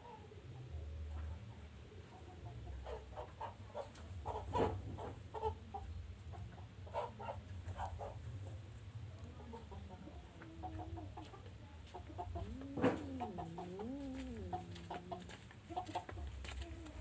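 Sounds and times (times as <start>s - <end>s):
steady low hum: 12.1s - 17.0s
animal calling: 12.3s - 16.1s.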